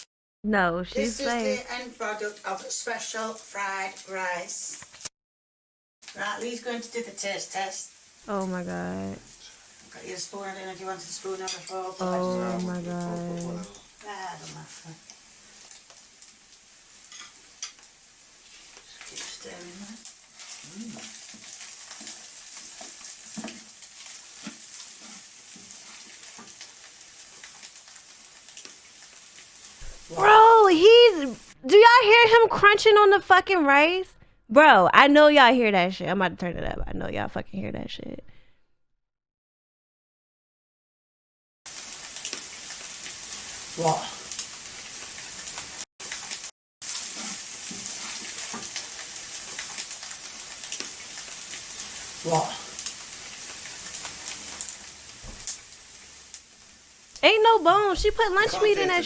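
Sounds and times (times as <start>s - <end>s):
rice sizzling in a frying pan: 1.0s - 5.1s, 6.0s - 31.6s, 41.7s - 59.0s
spoon scraping a pan: 11.1s - 12.0s, 16.9s - 19.7s, 20.3s - 27.8s, 46.9s - 49.9s
steady hiss: 41.7s - 59.0s.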